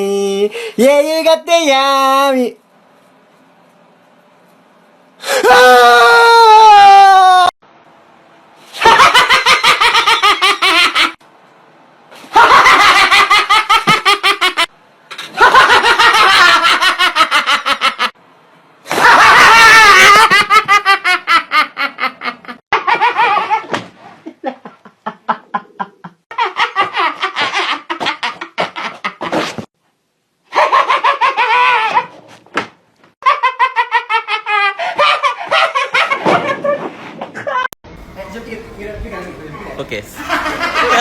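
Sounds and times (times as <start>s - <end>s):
loud rapid laughter: 8.8s - 11.2s, 18.9s - 23.8s, 24.5s - 29.6s, 30.5s - 32.2s, 33.2s - 37.7s, 40.2s - 41.0s.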